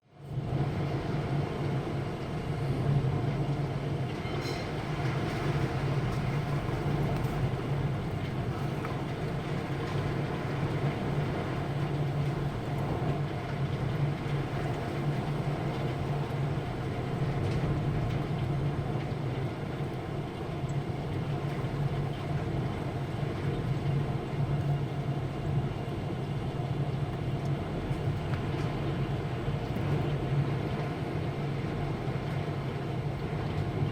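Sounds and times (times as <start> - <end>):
heavy rain roaring: 4.7 - 19.0.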